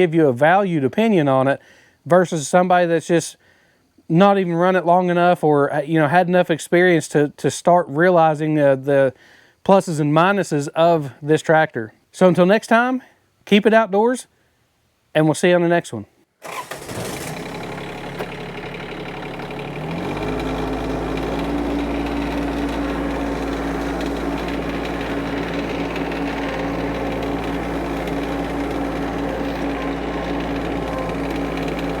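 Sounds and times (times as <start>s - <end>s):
diesel tractor engine running: 16.5s - 32.0s.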